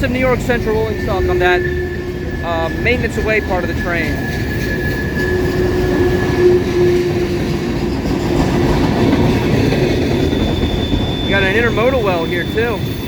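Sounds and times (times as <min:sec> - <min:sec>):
train wheels rumbling on rail: 0:00.0 - 0:13.0
thin wheel squeal: 0:00.6 - 0:07.2, 0:10.2 - 0:13.0.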